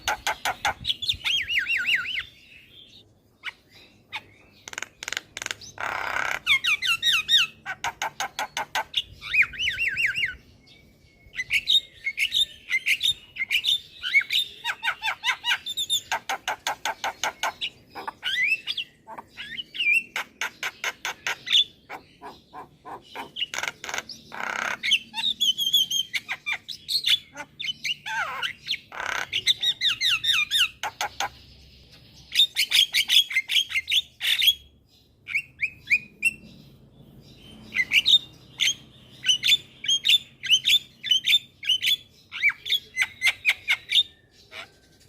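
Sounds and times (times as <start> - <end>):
harsh rasping squawk: 3.4 - 9.6, 13.4 - 31.4.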